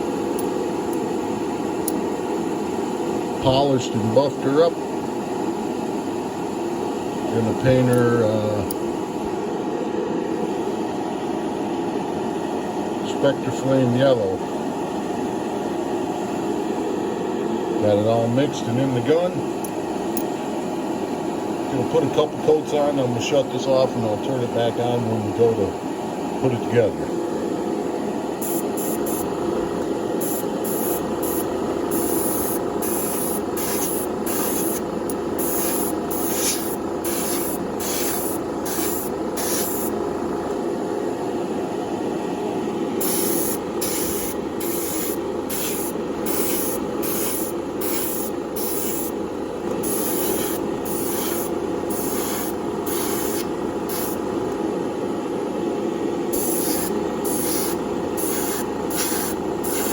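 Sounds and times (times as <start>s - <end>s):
steady background hum: 0.0s - 59.9s
airbrush spraying hiss: 28.4s - 29.3s, 30.2s - 34.8s, 35.4s - 39.9s, 43.0s - 49.2s, 49.8s - 54.2s, 56.3s - 59.9s.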